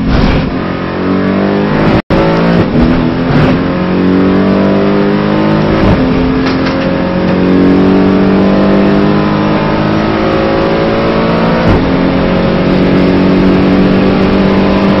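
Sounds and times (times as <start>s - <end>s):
race car engine at full throttle: 0.0s - 15.0s.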